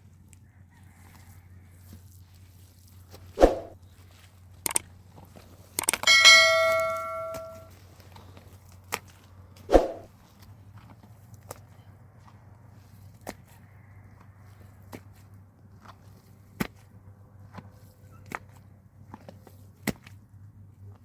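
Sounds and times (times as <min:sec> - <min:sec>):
metal object clanging: 0:05.9 - 0:07.7.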